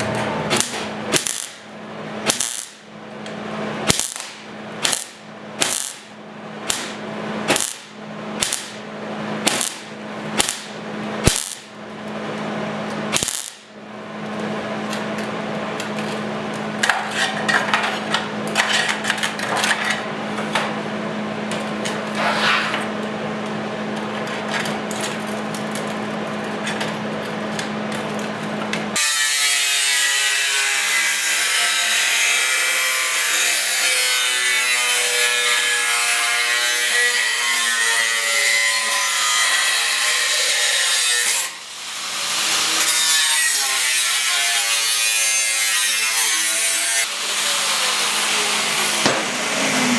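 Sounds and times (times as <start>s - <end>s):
power grinder grinding metal: 29.0s - 49.9s.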